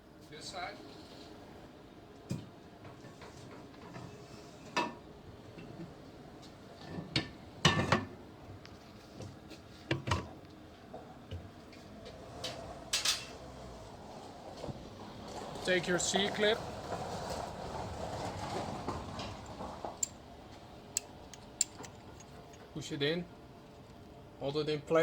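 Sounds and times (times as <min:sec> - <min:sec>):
metal parts clinking and knocking: 0:19.2 - 0:20.2, 0:20.9 - 0:22.8.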